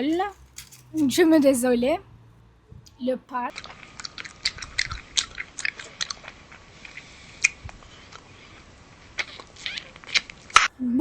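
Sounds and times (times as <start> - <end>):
crunchy flatbread being chewed: 3.5 - 10.7.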